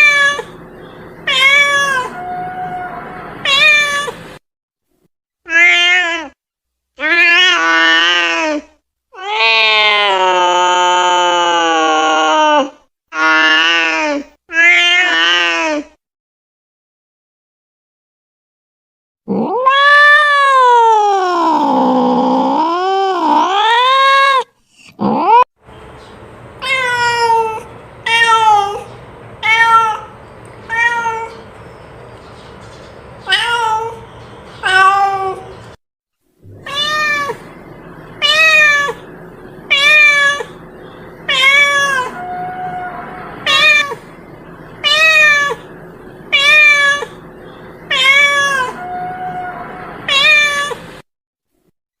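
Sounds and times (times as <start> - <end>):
cat meowing: 0.0 - 0.6, 1.3 - 4.2, 5.5 - 6.4, 7.0 - 8.5, 9.2 - 13.9, 19.3 - 22.0, 26.6 - 31.4, 33.2 - 34.0, 34.6 - 35.5, 36.5 - 37.6, 38.2 - 39.1, 39.7 - 40.6, 41.3 - 44.1, 44.8 - 45.7, 46.3 - 47.2, 47.9 - 50.9.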